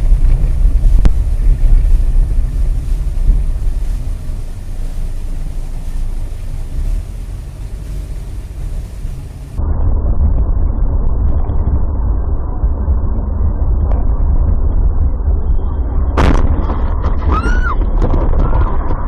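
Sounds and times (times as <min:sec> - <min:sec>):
road and engine rumble: 0:00.0 - 0:19.0
collision bang: 0:16.2 - 0:16.9.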